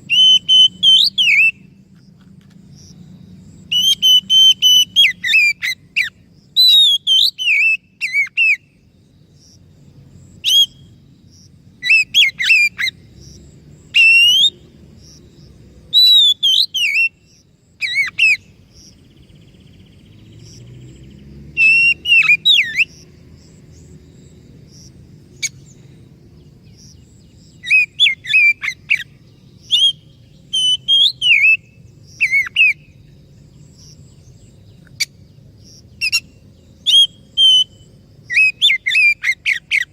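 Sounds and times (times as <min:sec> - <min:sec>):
bird singing whistled phrases: 0:00.1 - 0:01.7, 0:03.7 - 0:08.7, 0:10.4 - 0:10.9, 0:13.9 - 0:14.6, 0:15.9 - 0:17.2, 0:21.6 - 0:22.9, 0:27.6 - 0:33.0, 0:36.0 - 0:39.9.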